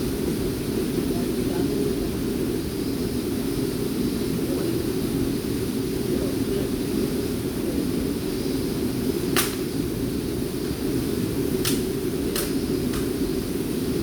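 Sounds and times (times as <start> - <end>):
sharp click: 9.4 - 9.7, 11.6 - 13.1.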